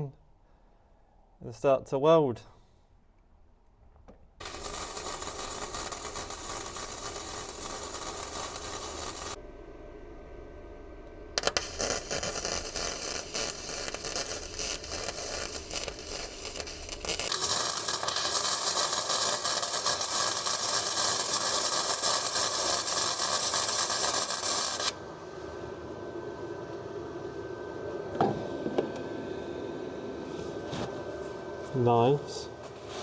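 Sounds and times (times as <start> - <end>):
welding arc crackling and hissing: 4.4 - 9.4, 11.4 - 25.0.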